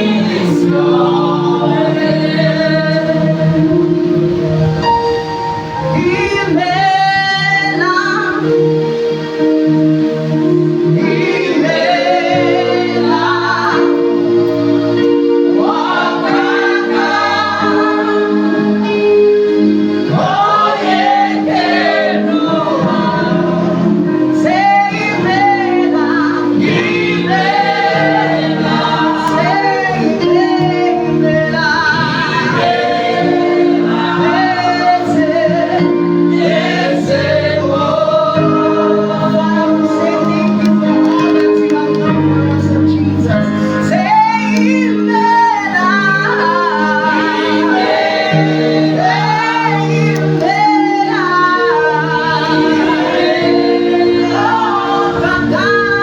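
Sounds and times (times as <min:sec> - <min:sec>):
choir singing: 0:00.0 - 0:08.9, 0:10.3 - 0:56.0
keyboard chords: 0:00.0 - 0:56.0
woman singing lead: 0:42.9 - 0:56.0.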